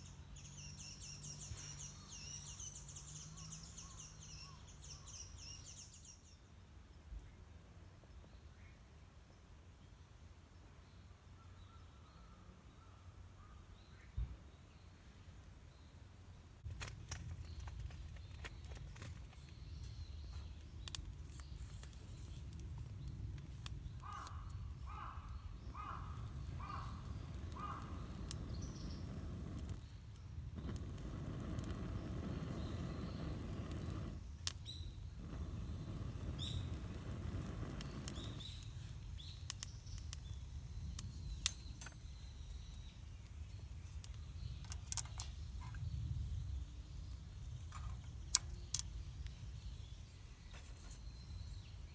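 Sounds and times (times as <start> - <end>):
small clicks and knocks: 16.6 - 24.4, 44.1 - 45.9
bird calling: 23.9 - 29.6.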